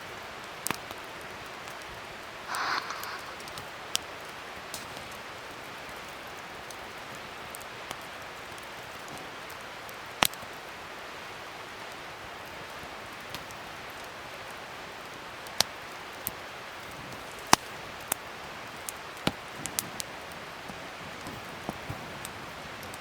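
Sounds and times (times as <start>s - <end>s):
fire popping: 2.5s - 3.7s
wood fire crackling: 2.5s - 3.7s.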